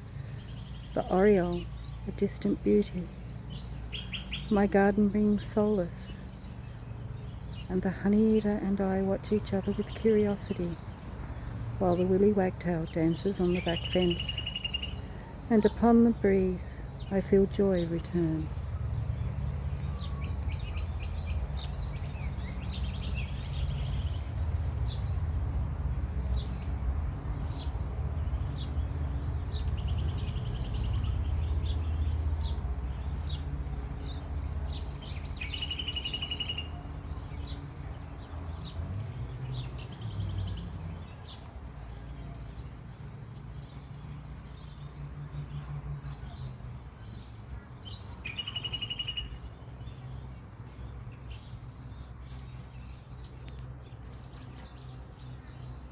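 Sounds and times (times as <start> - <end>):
bird chirps: 12.8 - 16.2, 27.4 - 55.9
bird trills: 13.6 - 15.4, 35.0 - 36.8, 47.9 - 49.5.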